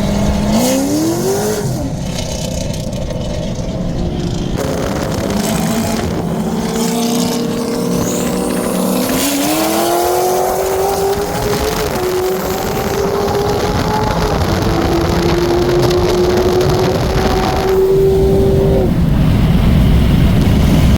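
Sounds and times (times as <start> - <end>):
car engine at full throttle: 0.0 - 20.9.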